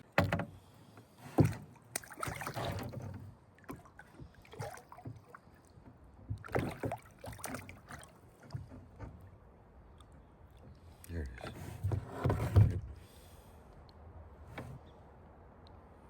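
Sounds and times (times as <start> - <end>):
water splashing around a kayak: 0.0 - 14.8
knocks against kayak hull: 0.1 - 0.6, 1.4 - 4.3.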